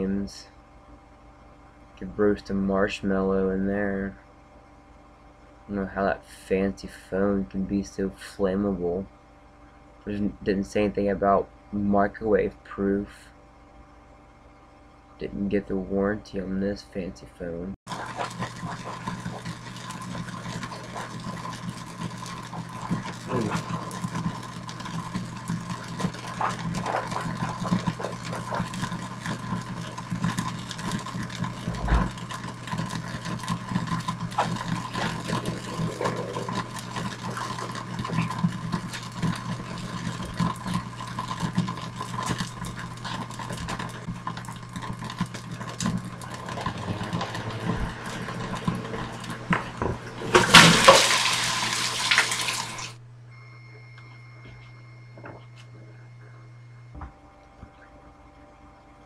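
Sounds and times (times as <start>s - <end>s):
microwave electrical hum: 0.0s - 59.0s
phone crackling and popping: 17.9s - 53.0s.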